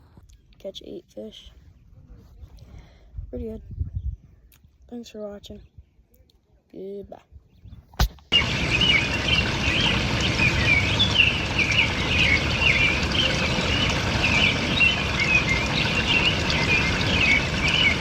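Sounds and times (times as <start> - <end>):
birds chirping and calling: 7.6 - 18.0
steady rushing noise: 8.3 - 18.0.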